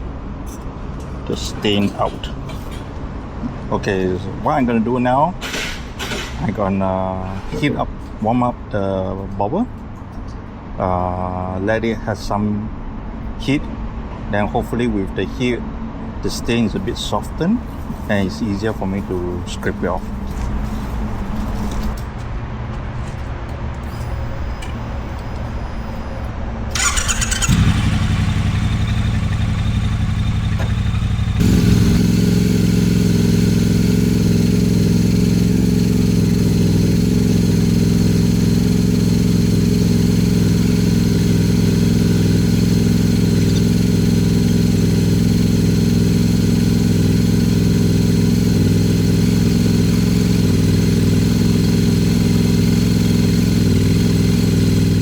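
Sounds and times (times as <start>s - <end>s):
motorcycle engine starting: 1.3s - 2.9s, 16.7s - 22.1s, 23.8s - 55.0s
motorcycle engine idling: 16.7s - 22.0s, 23.9s - 55.0s.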